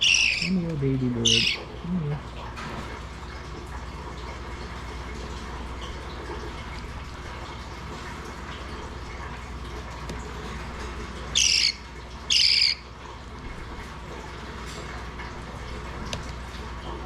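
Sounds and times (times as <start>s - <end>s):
parakeet chick squawks: 0.0s - 0.6s, 1.2s - 1.8s, 11.3s - 12.8s.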